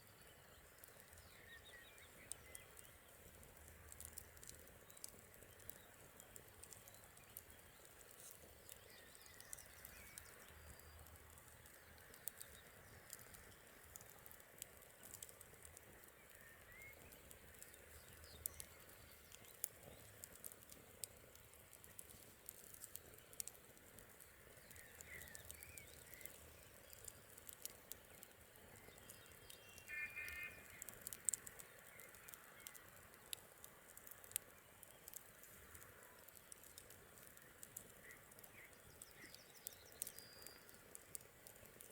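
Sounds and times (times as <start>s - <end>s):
faint campfire crackling: 0.0s - 41.9s
bird chirps: 16.2s - 20.1s, 24.5s - 27.2s, 28.7s - 32.9s, 38.0s - 40.8s.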